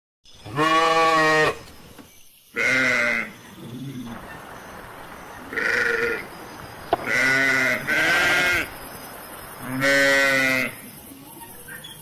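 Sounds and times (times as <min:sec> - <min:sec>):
sheep bleating loudly: 0:00.5 - 0:01.6, 0:02.6 - 0:03.4, 0:05.5 - 0:06.2, 0:07.0 - 0:08.7, 0:09.6 - 0:10.8.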